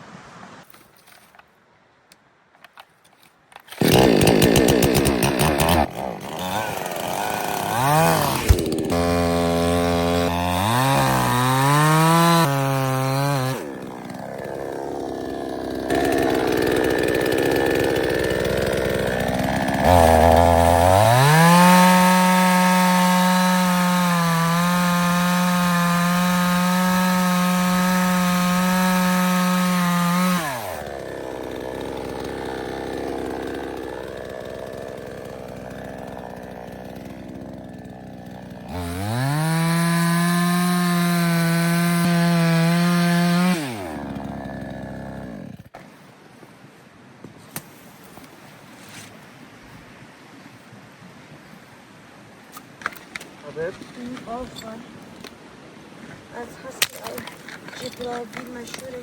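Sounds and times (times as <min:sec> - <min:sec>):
chainsaw starting and revving: 0:03.6 - 0:45.7, 0:56.6 - 0:59.0.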